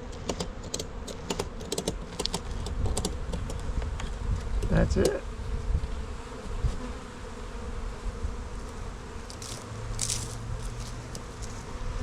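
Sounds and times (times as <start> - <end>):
honeybees buzzing: 0.0 - 12.0
wind rumbling on microphone: 1.9 - 7.0.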